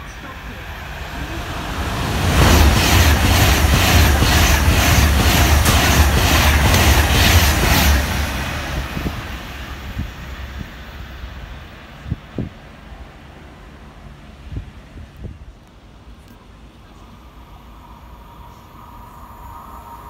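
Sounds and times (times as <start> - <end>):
electric train passing at speed: 0.0 - 20.0
wheels clickety-clack: 2.4 - 8.0.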